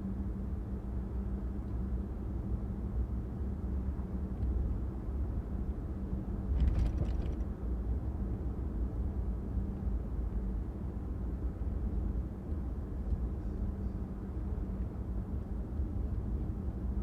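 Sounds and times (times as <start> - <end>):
car engine and road rumble: 0.0 - 17.0
clicks and rattles: 6.6 - 7.4.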